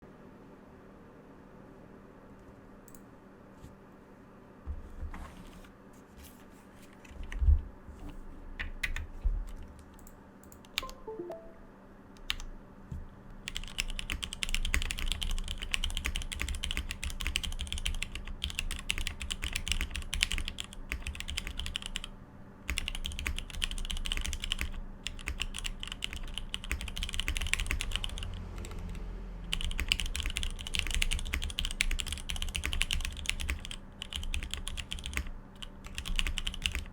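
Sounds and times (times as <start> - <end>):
mechanical keyboard typing: 8.6 - 11.4, 12.2 - 12.5, 13.4 - 22.1, 22.7 - 36.9.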